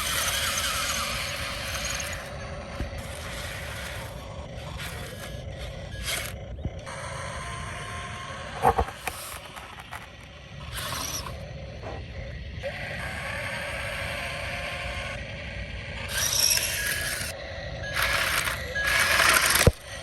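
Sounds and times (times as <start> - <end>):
heavy machinery engine rumble: 0.0 - 20.0.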